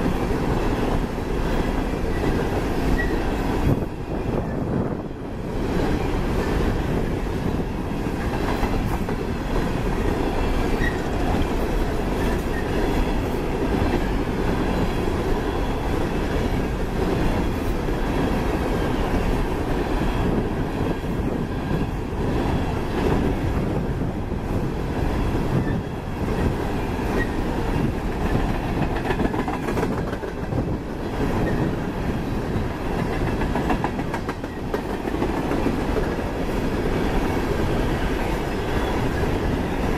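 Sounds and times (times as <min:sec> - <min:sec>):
freight train wheels rumbling: 0:00.0 - 0:39.9
wheels clicking over rail joints: 0:25.5 - 0:31.7.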